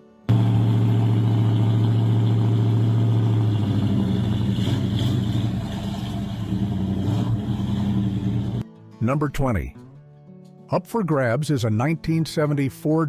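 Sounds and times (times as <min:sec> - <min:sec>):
car engine running: 0:00.3 - 0:08.6.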